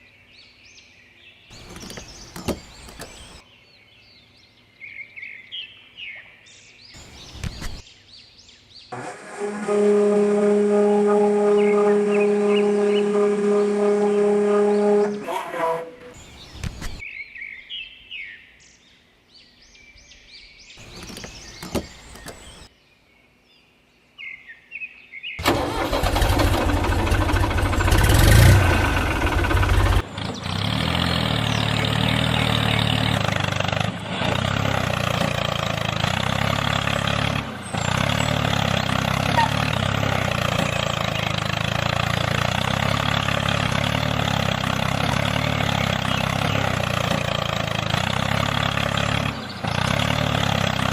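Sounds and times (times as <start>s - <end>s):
engine starting and idling: 9.0s - 9.8s, 25.4s - 30.4s.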